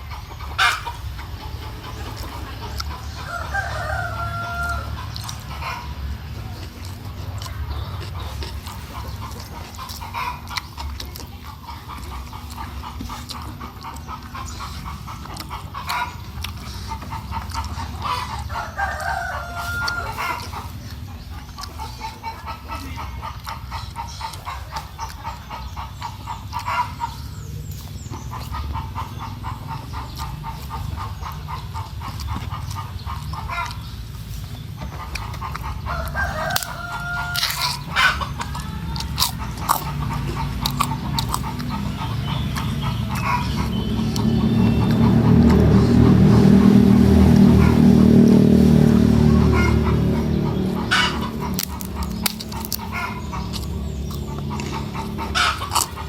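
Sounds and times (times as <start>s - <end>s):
hens clucking: 0.0s - 56.0s
steady low rumble: 0.0s - 56.0s
rooster crowing: 3.1s - 5.8s, 18.0s - 20.6s, 35.8s - 40.1s.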